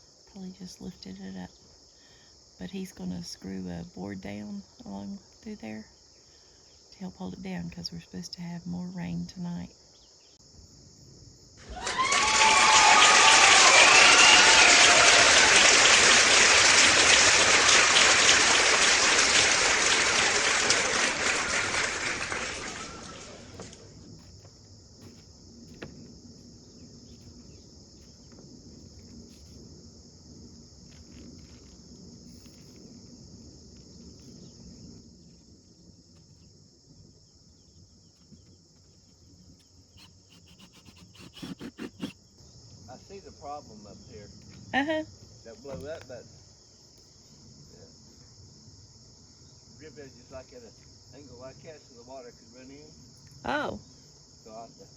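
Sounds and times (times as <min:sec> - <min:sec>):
crickets chirring: 0:00.0 - 0:54.9.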